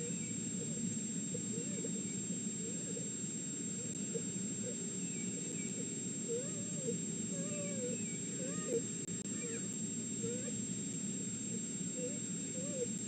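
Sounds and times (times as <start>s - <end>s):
steady hiss: 0.0s - 13.0s
wolf whimpering: 6.3s - 10.6s, 12.0s - 12.9s.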